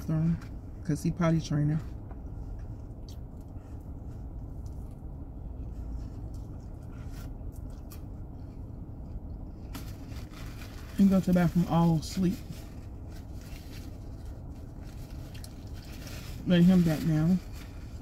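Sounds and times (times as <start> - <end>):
low car cabin rumble: 0.0 - 18.0
person chewing with wet smacks: 15.2 - 15.6.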